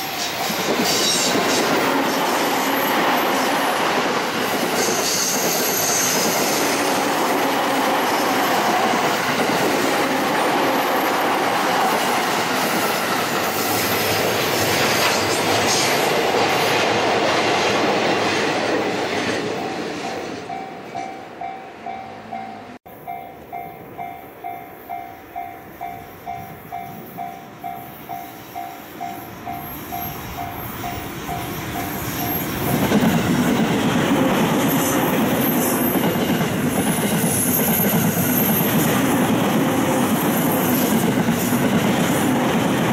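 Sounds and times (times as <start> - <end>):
train wheel and rail noise: 0.0 - 42.9
level crossing warning bell: 20.1 - 33.1.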